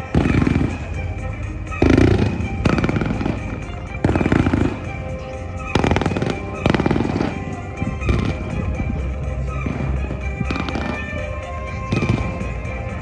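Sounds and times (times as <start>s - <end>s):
show music: 0.0s - 13.0s.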